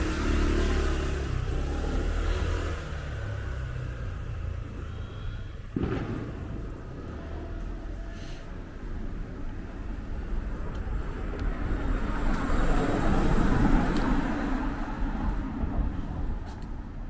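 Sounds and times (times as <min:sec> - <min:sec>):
car driving past: 0:00.0 - 0:08.2.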